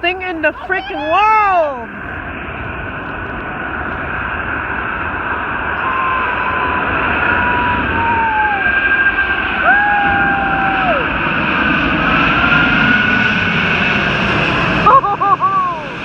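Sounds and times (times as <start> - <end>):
jet engines roaring overhead: 0.0 - 16.0
thin whining tones: 5.6 - 11.9.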